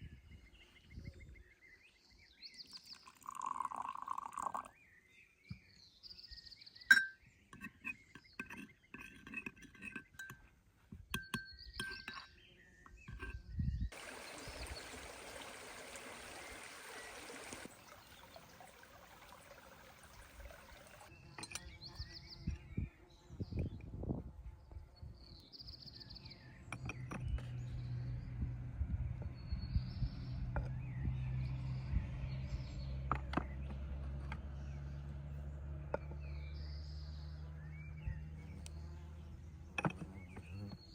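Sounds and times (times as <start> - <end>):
birds chirping: 11.5 - 23.8, 29.2 - 40.9
rushing pouring sound: 13.9 - 21.1.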